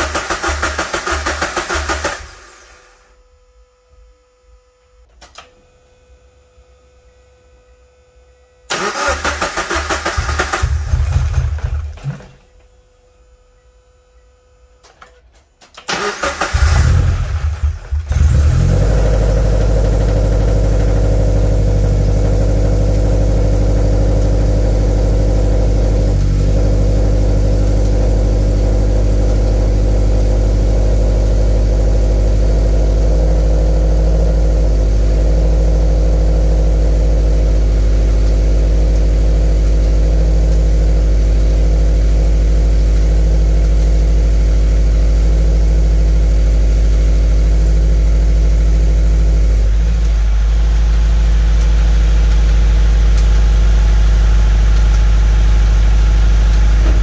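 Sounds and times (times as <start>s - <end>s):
car engine idling: 16.6s - 57.0s.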